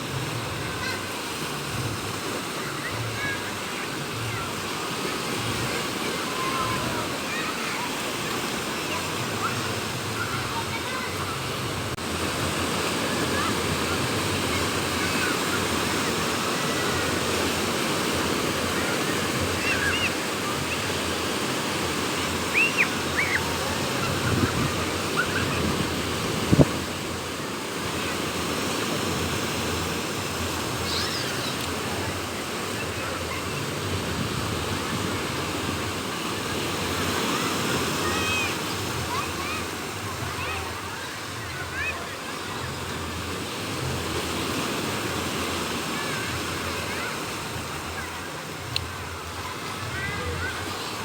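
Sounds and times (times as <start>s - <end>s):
sea waves breaking on beach: 0.0s - 51.0s
wind blowing: 11.2s - 41.0s.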